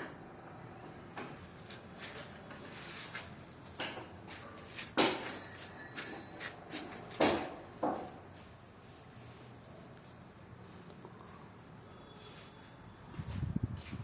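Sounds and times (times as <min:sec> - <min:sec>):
sharp knocks and clatters: 0:03.7 - 0:08.2.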